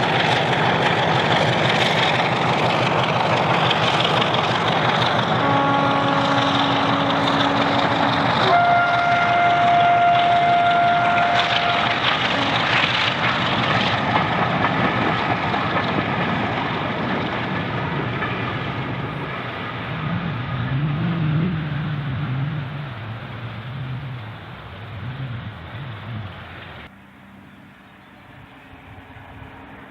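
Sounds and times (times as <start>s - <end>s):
locomotive engine noise: 0.0s - 29.9s
locomotive two-tone horn: 5.4s - 13.0s.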